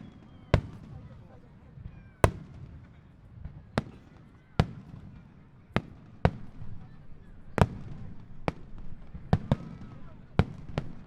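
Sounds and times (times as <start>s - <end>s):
faint fireworks whistles: 0.0s - 8.7s
fireworks shells bursting: 2.2s - 2.6s.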